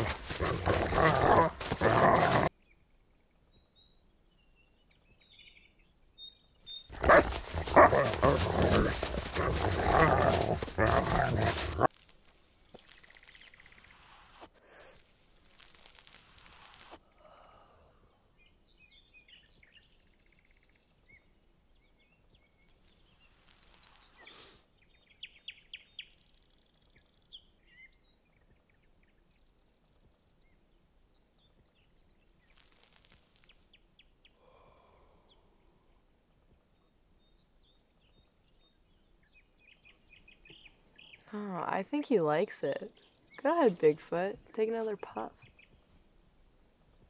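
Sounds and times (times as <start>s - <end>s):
faint birdsong: 0.0s - 11.9s, 17.0s - 47.0s
soft hiss: 12.0s - 17.2s, 32.2s - 34.4s.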